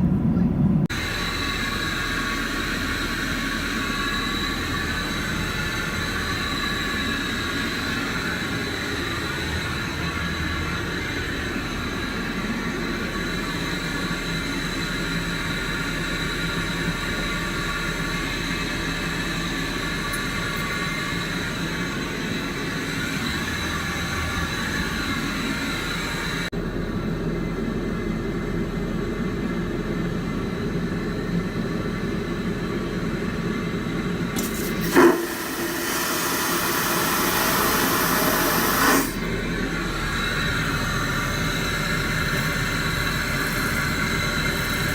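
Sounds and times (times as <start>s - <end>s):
airliner cabin rumble: 0.0s - 36.8s
loud hiss: 34.4s - 39.3s.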